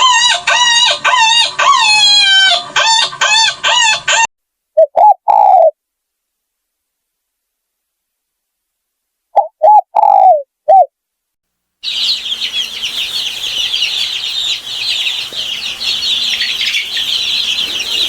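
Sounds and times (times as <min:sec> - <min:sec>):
many small birds chirping: 0:11.8 - 0:18.0.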